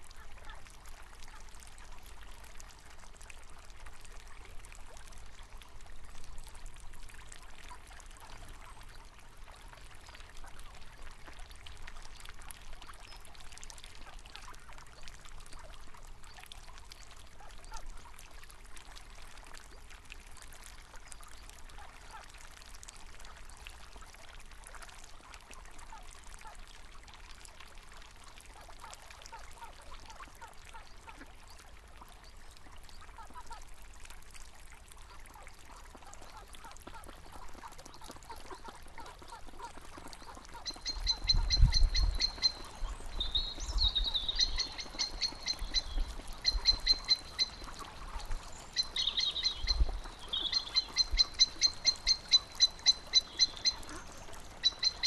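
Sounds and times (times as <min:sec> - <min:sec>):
river water trickling: 0:00.0 - 0:55.0.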